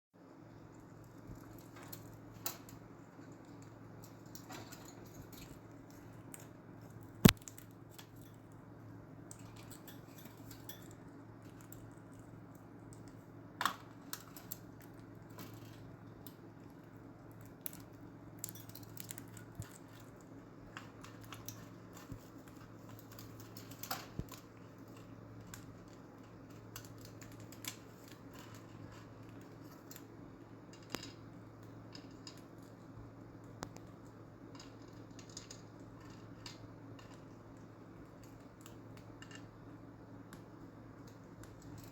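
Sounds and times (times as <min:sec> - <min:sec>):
light clicks and taps: 0:30.8 - 0:39.6.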